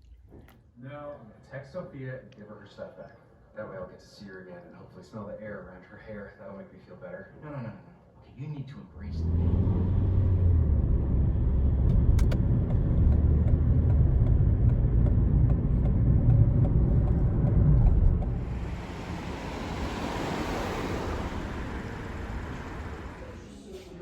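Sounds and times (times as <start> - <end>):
low vehicle rumble: 9.0 - 23.8.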